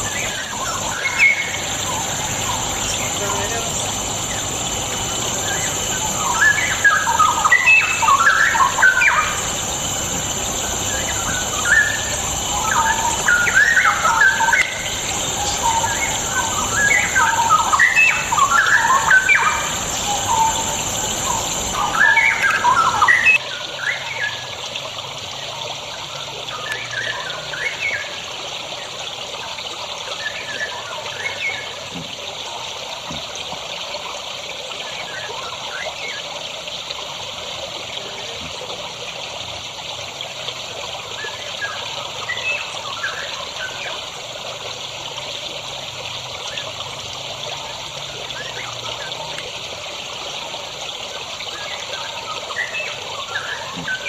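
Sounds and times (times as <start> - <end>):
bird warbling song: 0.0 - 23.4.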